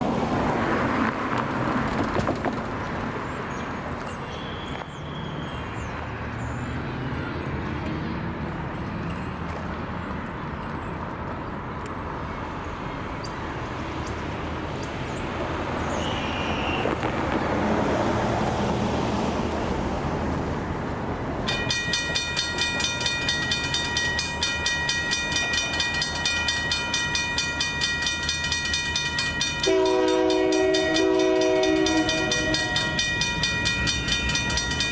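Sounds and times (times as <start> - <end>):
road traffic: 0.0 - 34.9
birds chirping: 3.2 - 17.5
crossing bell ringing: 4.0 - 5.7, 21.4 - 34.9
locomotive horn: 16.0 - 17.0, 29.4 - 34.0.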